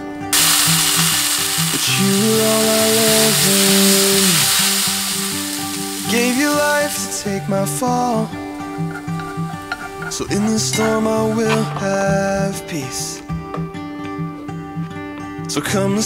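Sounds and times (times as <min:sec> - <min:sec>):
vegetable sizzling in a pan: 0:00.3 - 0:10.5.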